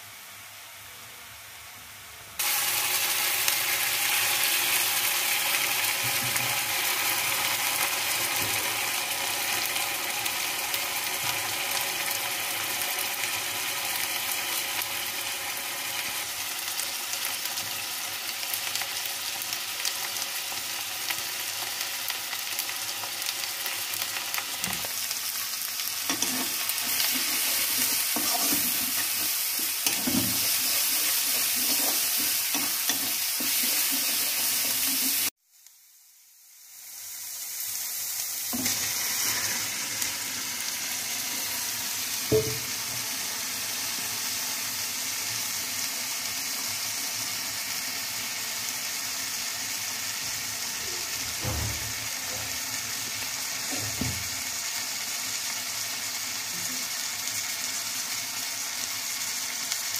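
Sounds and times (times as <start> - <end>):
onions sizzling in oil: 0.0 - 0.8, 1.5 - 59.9
metal spatula scraping pan: 26.1 - 35.2.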